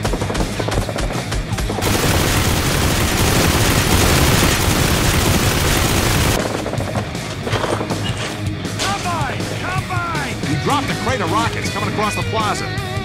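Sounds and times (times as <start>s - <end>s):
loud dense unbroken noise: 1.8s - 6.4s
automatic gunfire: 1.8s - 6.8s.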